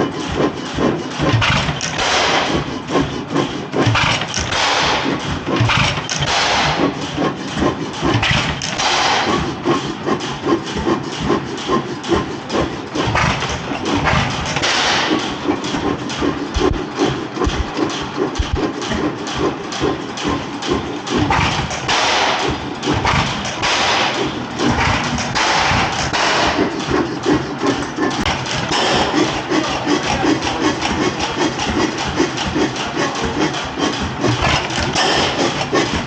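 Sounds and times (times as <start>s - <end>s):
stationary engine thumping: 0.0s - 36.0s.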